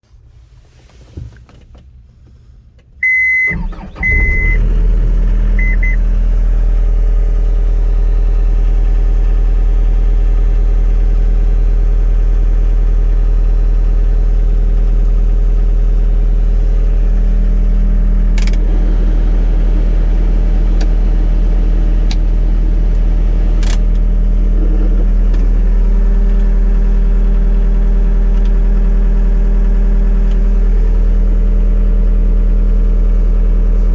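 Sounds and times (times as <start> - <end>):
diesel engine starting and idling: 1.9 - 33.9
warning beeps: 3.0 - 4.7, 5.6 - 6.0.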